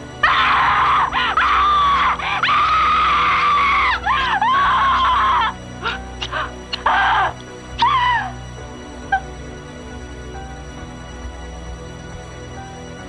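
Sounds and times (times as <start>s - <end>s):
dramatic film score: 0.0s - 13.0s
person screaming: 0.2s - 8.4s.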